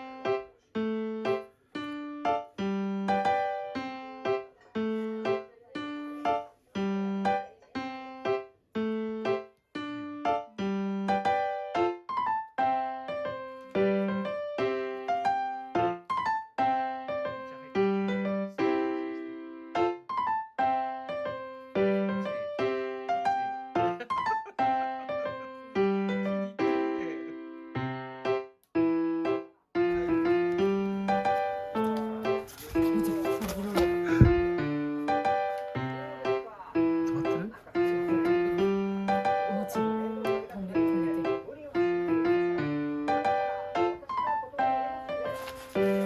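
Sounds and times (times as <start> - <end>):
light piano tune: 0.0 - 46.0.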